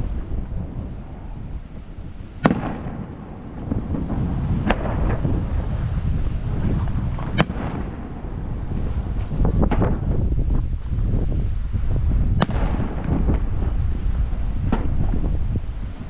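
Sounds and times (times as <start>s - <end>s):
wind rumble on microphone: 0.0s - 16.0s
fireworks bangs with echo: 2.4s - 10.3s, 12.3s - 16.0s.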